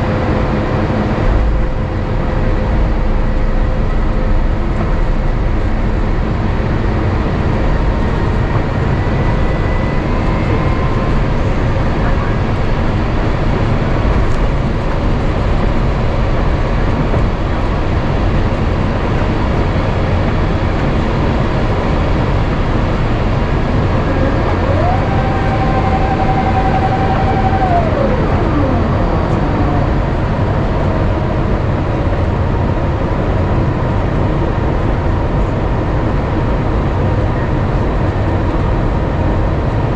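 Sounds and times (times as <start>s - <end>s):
airplane cabin engine rumble: 0.0s - 39.9s
short mechanical whine: 23.2s - 31.1s.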